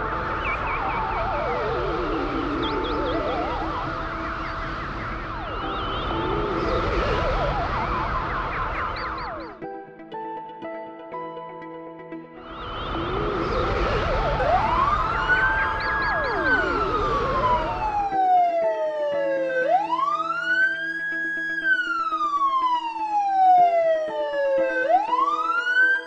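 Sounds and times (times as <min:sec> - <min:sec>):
cartoon siren wailing: 0:00.0 - 0:09.6, 0:12.5 - 0:26.0
noisy whooshing with warbling sweeps: 0:00.0 - 0:09.6, 0:12.4 - 0:18.6
background music: 0:00.0 - 0:26.0.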